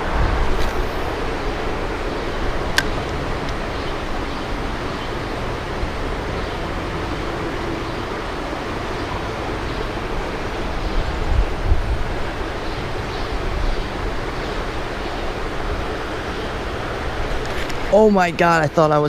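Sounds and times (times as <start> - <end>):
wind buffeting microphone: 0.0 - 18.5
creek rushing: 0.0 - 19.0.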